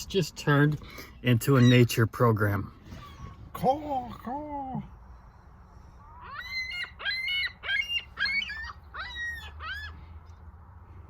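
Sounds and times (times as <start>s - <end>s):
birds calling high and short: 0.8s - 10.5s.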